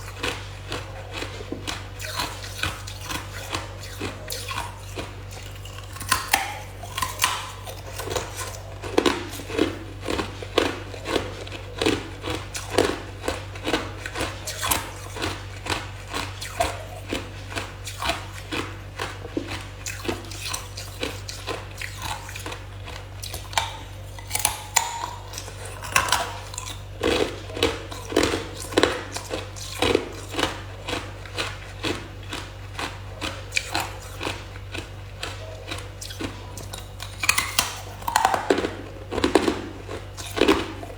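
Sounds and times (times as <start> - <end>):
ice being chewed: 0.0 - 40.9.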